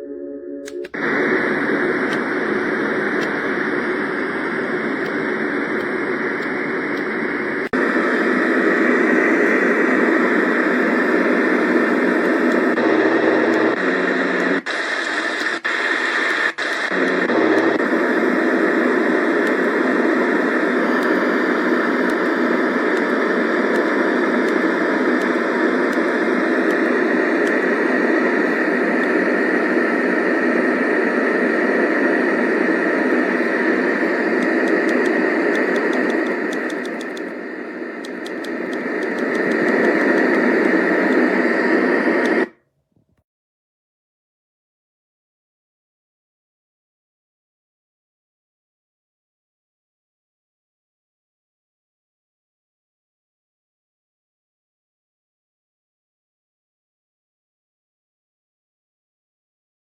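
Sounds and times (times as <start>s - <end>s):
white noise hiss from speaker: 0.6s - 42.5s.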